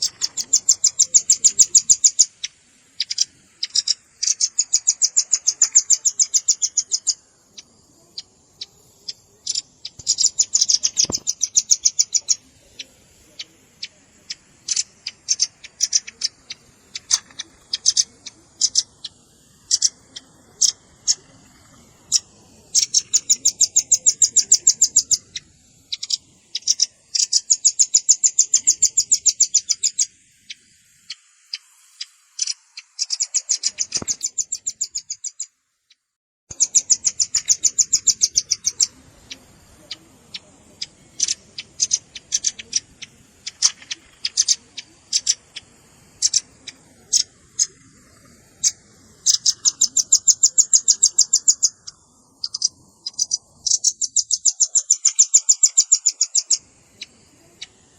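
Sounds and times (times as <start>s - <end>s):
bird trilling calls: 0.0s - 35.6s, 36.5s - 57.9s
single bird chips: 9.5s - 12.3s.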